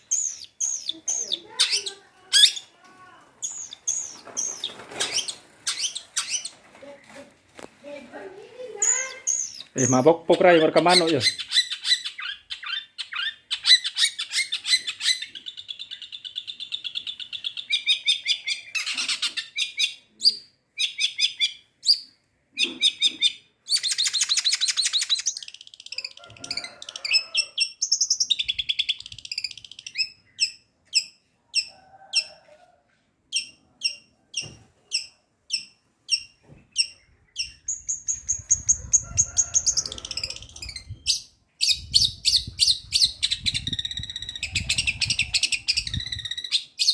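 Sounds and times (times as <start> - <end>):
bird singing trills and chirps: 0.0 - 2.7, 3.4 - 7.0, 8.8 - 26.2, 33.3 - 46.9.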